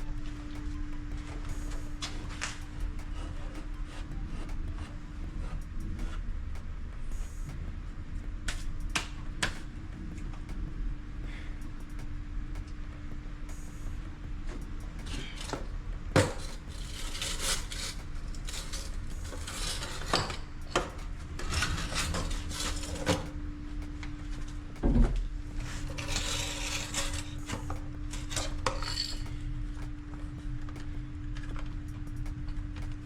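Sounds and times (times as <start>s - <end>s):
steady low hum: 0.0s - 33.0s
scraping and rubbing of pipe: 14.6s - 23.4s, 24.1s - 29.5s.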